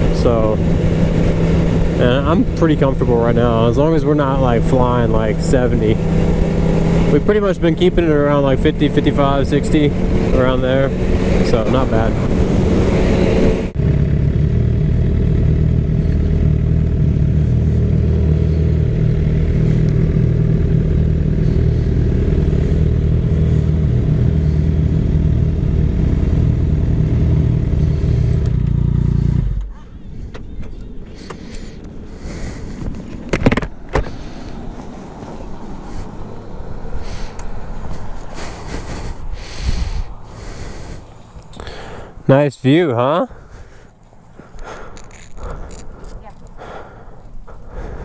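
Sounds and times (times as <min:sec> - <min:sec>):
motorcycle engine idling: 0:00.0 - 0:12.4, 0:13.7 - 0:48.0
wind rush while riding: 0:06.0 - 0:13.8, 0:29.3 - 0:42.2.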